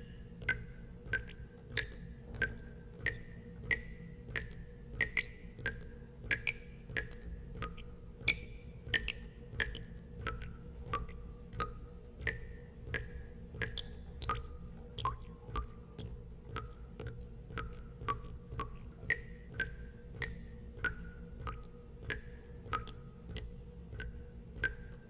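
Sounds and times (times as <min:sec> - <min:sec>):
low steady hum: 0:00.0 - 0:25.0
water drops plinking into water: 0:00.4 - 0:25.0.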